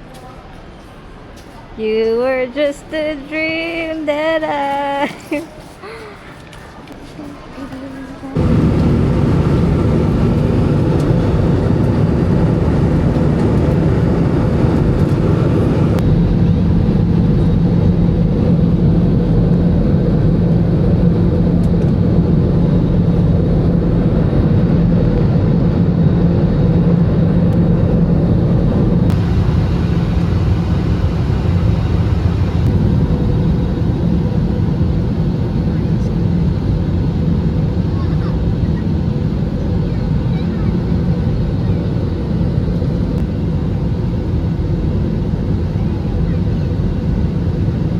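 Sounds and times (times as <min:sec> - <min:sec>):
road rumble: 0:08.4 - 0:20.2, 0:20.8 - 0:36.1
vehicle engine hum: 0:08.4 - 0:36.6.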